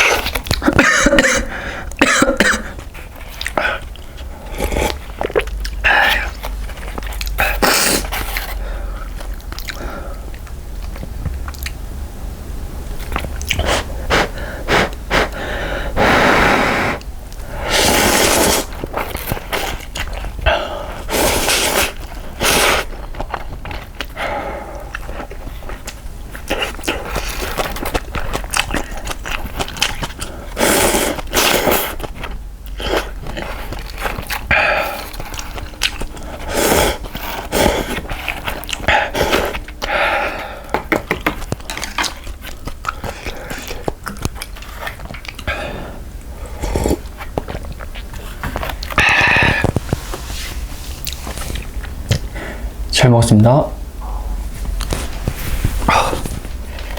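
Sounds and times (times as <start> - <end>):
chewing: 0.0 - 0.8, 2.8 - 11.8, 13.0 - 15.5, 16.9 - 52.4
slurping noodles: 2.7 - 9.2, 13.5 - 43.9, 45.5 - 51.8.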